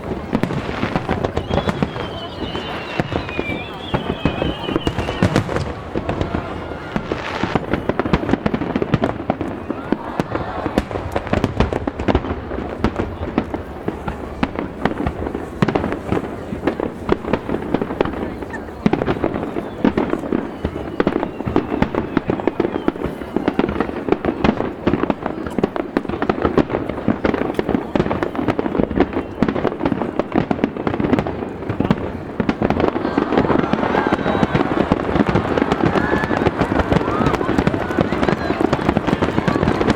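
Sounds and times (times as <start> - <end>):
fireworks bursts and crackling: 0.0 - 39.9
faint rising firework whistles: 0.3 - 11.7, 19.0 - 23.9, 32.8 - 39.2.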